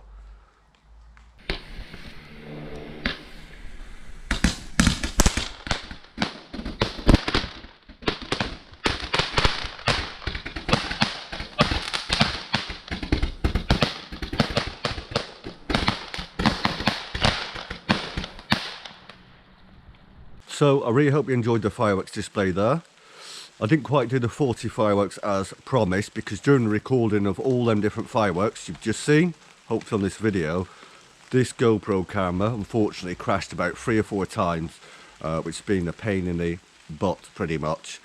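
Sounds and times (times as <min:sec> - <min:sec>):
firework hiss: 0:01.4 - 0:19.4
firework cracking shots: 0:04.3 - 0:19.3.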